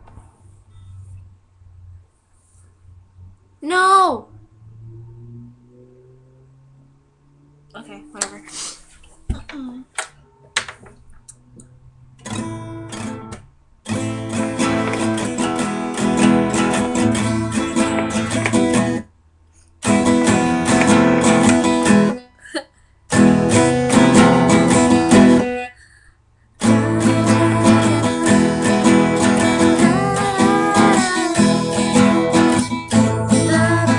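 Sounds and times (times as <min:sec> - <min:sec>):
strummed acoustic guitar music: 0:12.2 - 0:19.1, 0:19.8 - 0:22.3, 0:23.1 - 0:25.7, 0:26.6 - 0:33.9.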